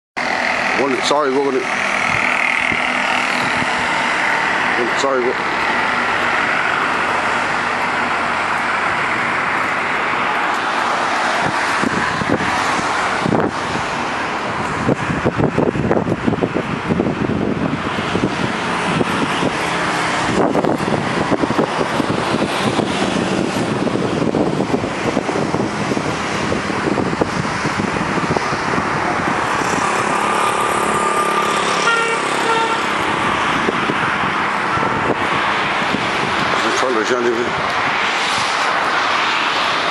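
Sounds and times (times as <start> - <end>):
sanitation truck running: 0.2 - 37.0
vehicle and road noise: 0.2 - 39.9
short horn-like tone: 31.8 - 32.9.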